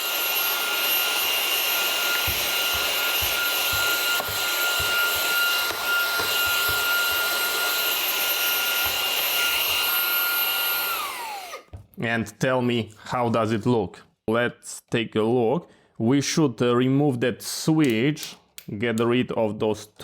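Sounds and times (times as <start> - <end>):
power tool motor whining: 0.0 - 11.8.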